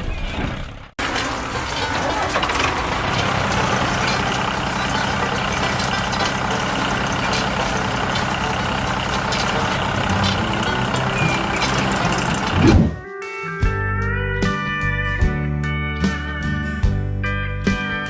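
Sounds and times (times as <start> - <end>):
heavy vehicle engine humming: 0.0 - 13.0.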